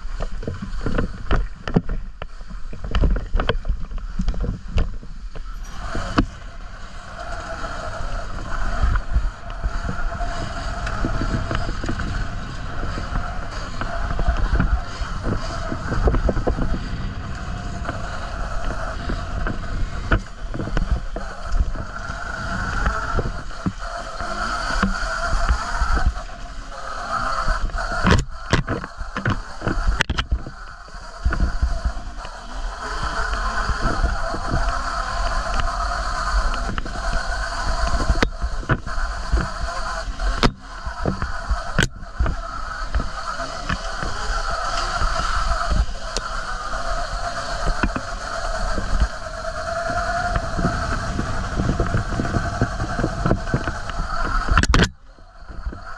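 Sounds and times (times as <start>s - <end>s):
motor tone wavering: 0.0s - 55.9s
wind buffeting microphone: 0.0s - 55.9s.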